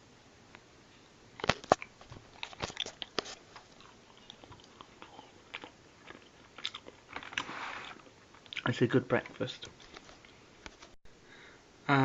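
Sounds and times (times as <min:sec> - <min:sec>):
chocolate crunching and chewing: 0:01.4 - 0:09.6.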